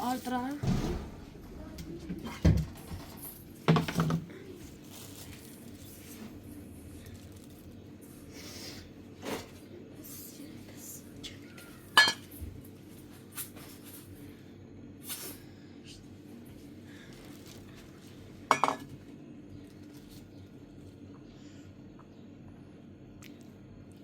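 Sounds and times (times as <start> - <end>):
faint low hum: 0.0 - 14.8
dishes and cutlery clinking: 12.0 - 12.3, 18.5 - 18.9.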